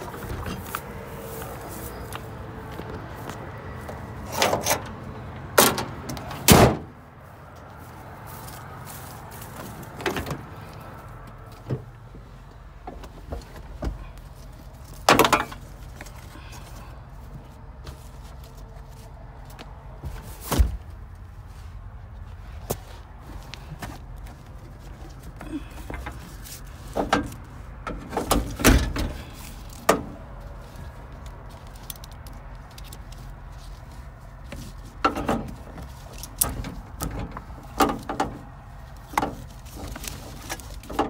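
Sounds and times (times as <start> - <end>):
sharp clunks and knocks: 15.0 - 15.6.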